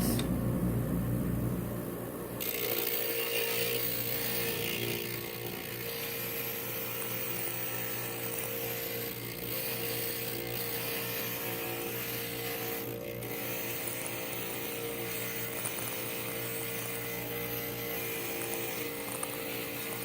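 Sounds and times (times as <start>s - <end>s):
glass grinder motor hum: 2.4s - 20.0s
gritty grinding hiss: 2.4s - 20.0s.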